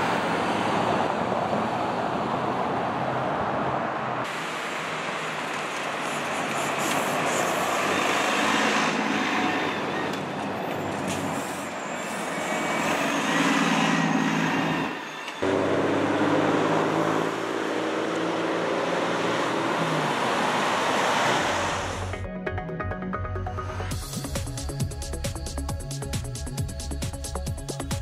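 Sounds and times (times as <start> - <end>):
bus driving past: 0.0 - 22.2
tyre and road noise: 0.0 - 22.2.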